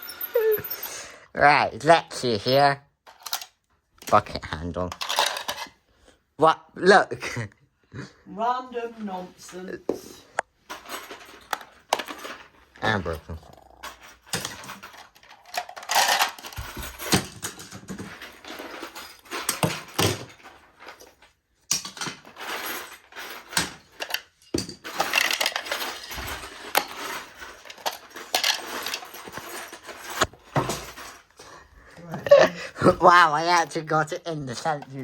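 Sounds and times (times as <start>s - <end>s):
toy pieces clattering: 0.0s - 1.1s, 2.1s - 5.8s, 10.4s - 31.6s.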